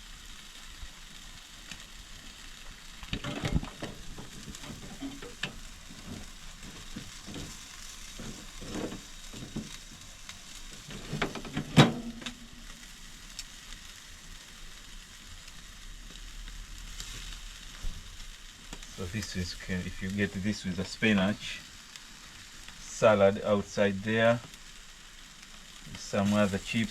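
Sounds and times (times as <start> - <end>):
chicken sizzling on a grill: 0.0 - 26.9.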